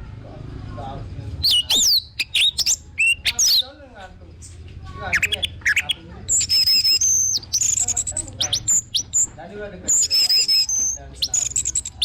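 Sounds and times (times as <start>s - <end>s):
thrush singing: 1.4s - 3.6s, 5.1s - 9.3s.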